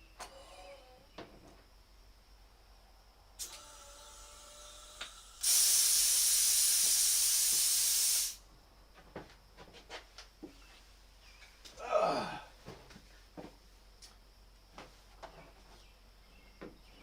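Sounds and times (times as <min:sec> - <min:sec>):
compressed air hissing: 0:03.4 - 0:08.4.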